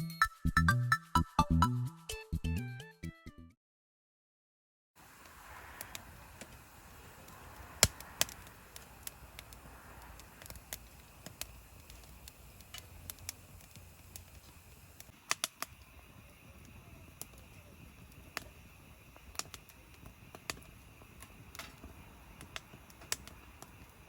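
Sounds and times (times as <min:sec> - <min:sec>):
faint steady background noise: 0:05.0 - 0:24.0.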